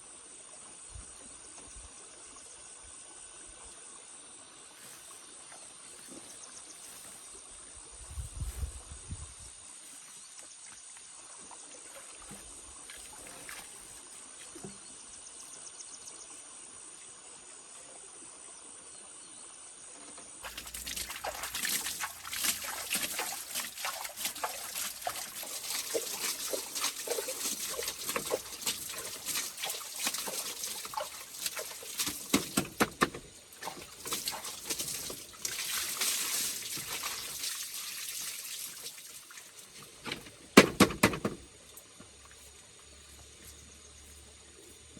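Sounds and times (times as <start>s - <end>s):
water pouring and splashing: 11.6s - 14.7s, 20.4s - 43.1s
dull thud: 40.0s - 41.5s.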